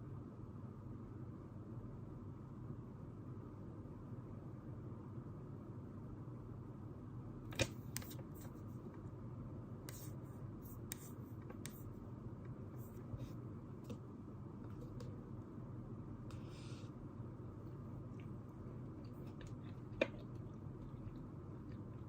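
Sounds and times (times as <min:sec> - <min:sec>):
low room hum: 0:00.0 - 0:22.0
small clicks and taps at desk: 0:10.9 - 0:12.6.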